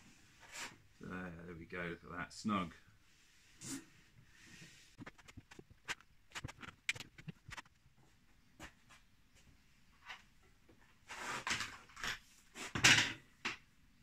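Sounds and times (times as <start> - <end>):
scraping and rustling: 3.5 - 7.9.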